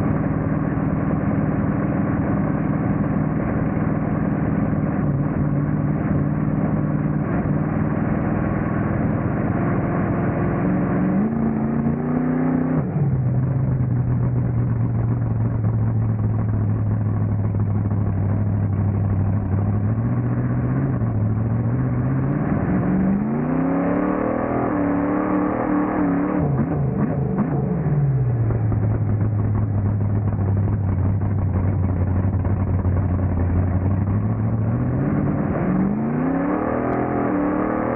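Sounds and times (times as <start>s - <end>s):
truck engine revving: 19.6s - 28.8s, 33.8s - 37.9s.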